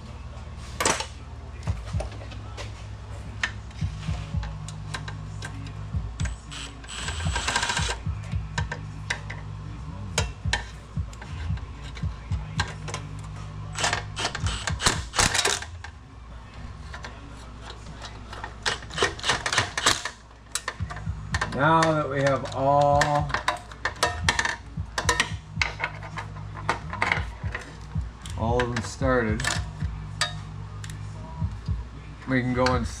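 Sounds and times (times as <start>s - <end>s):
steady low hum: 0.0s - 33.0s
hand ratchet clicking: 6.2s - 9.4s, 13.8s - 15.9s, 18.0s - 31.0s.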